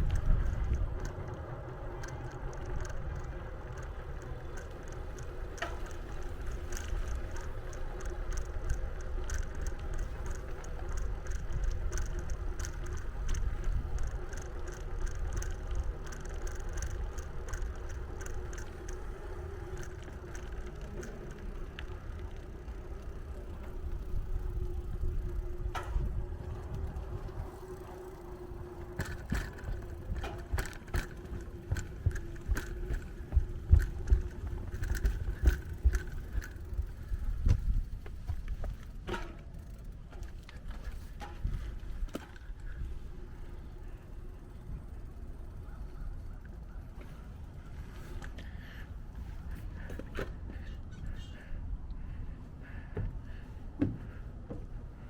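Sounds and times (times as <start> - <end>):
light regular ticks: 0.0 - 50.7
road noise: 0.0 - 55.0
steady hum: 0.0 - 55.0
wind rumble: 0.0 - 55.0.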